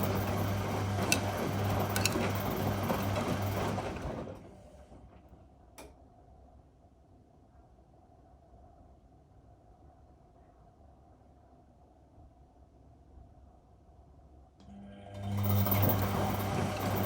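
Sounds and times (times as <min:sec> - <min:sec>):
washing machine click: 0:00.0 - 0:03.6
wet laundry churning: 0:00.0 - 0:04.6, 0:15.2 - 0:17.0
washing machine motor hum: 0:00.0 - 0:05.2, 0:14.7 - 0:17.0.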